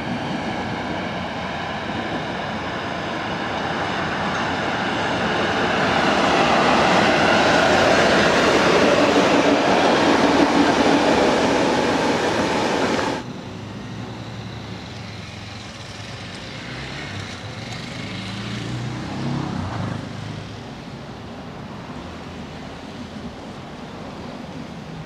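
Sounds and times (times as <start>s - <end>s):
distant train rumble and hum: 0.0s - 17.9s
train wheels rumbling on rails: 0.0s - 25.0s.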